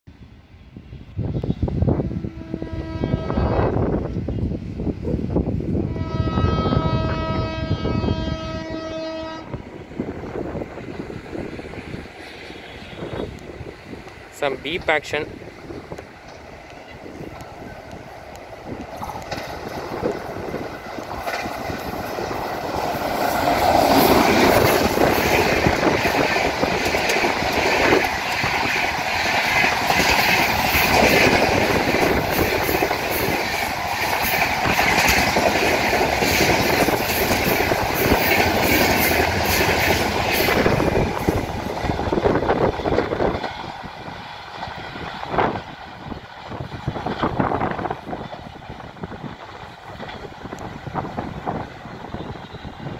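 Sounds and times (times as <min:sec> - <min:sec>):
electric train passing at speed: 0:00.1 - 0:52.9.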